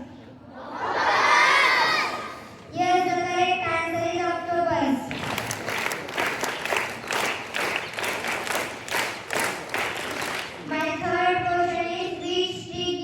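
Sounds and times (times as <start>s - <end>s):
children applauding: 5.1s - 10.6s.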